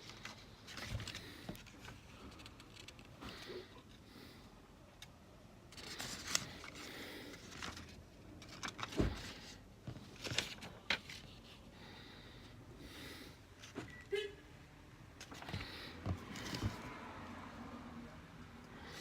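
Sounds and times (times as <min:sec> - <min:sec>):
paper rustling and scraping: 0:00.0 - 0:03.5, 0:05.7 - 0:11.7, 0:15.2 - 0:16.9.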